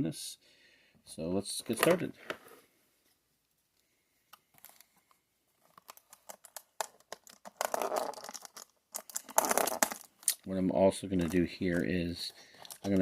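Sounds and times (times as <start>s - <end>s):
small clicks and rustles: 3.1s - 10.5s, 12.2s - 13.0s
packaging crinkling and tearing: 5.6s - 10.4s, 12.4s - 13.0s.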